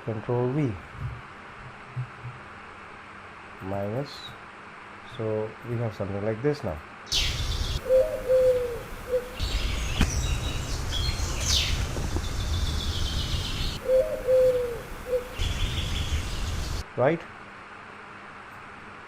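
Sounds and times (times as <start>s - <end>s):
high bird chirps: 7.1s - 16.8s
dove cooing: 7.2s - 16.8s
steady low rumble: 7.2s - 16.8s.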